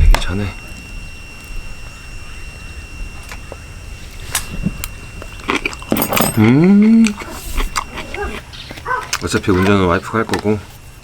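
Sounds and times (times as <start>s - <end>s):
faint high-pitched tone: 0.0s - 8.2s.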